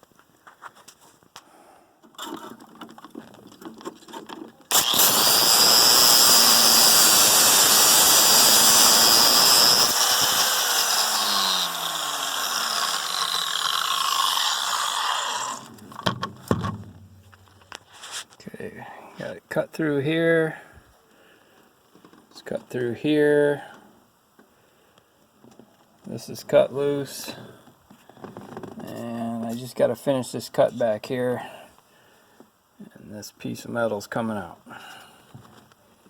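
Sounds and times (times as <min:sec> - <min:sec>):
power tool cutting metal: 0:04.7 - 0:15.7.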